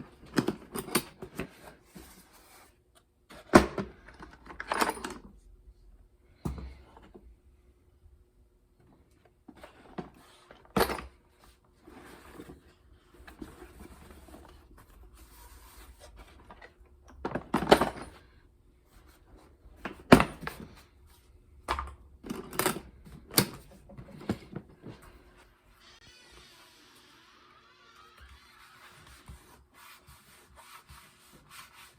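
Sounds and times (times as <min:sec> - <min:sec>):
rustling and scraping: 0:11.3 - 0:16.8, 0:27.9 - 0:31.9.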